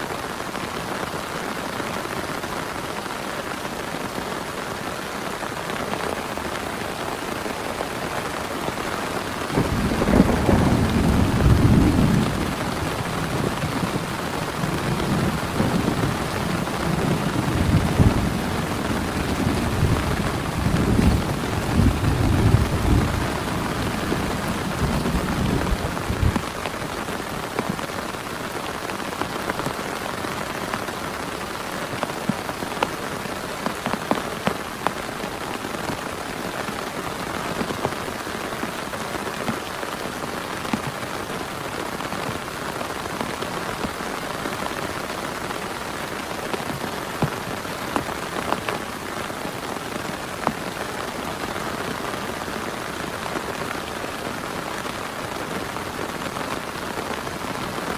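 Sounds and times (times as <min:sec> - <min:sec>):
heavy rain falling: 0:00.0 - 0:57.9
raindrops ticking: 0:09.0 - 0:36.0.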